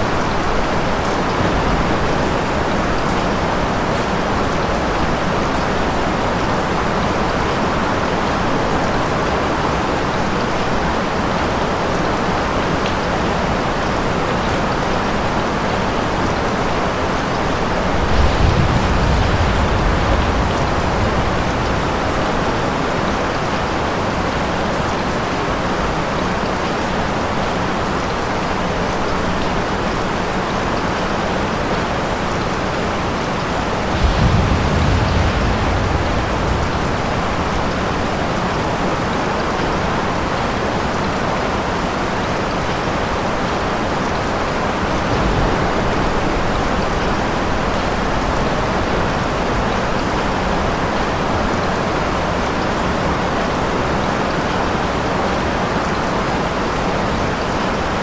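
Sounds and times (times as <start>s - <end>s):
low rolls of thunder: 0.0s - 9.8s, 13.2s - 25.2s, 31.8s - 40.3s, 44.1s - 55.1s
heavy rain: 0.0s - 58.0s.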